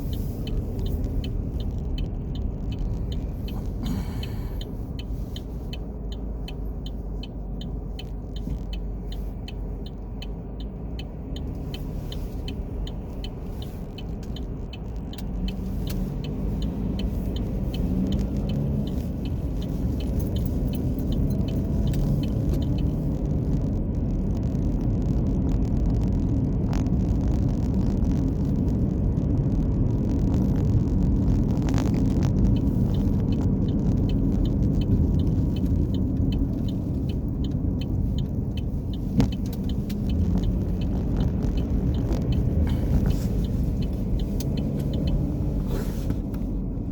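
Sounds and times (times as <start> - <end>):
car engine and road noise: 0.0 - 46.9
faint even ticking: 32.4 - 45.6.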